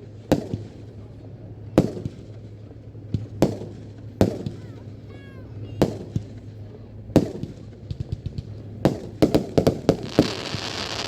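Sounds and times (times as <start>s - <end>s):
fireworks bangs: 7.2s - 11.0s
fireworks crackling hiss: 9.1s - 11.0s.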